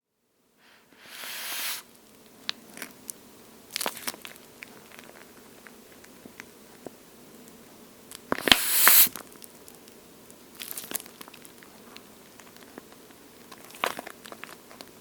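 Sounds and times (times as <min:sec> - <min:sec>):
squeeze toy rustle: 0:01.0 - 0:01.8, 0:08.4 - 0:09.2.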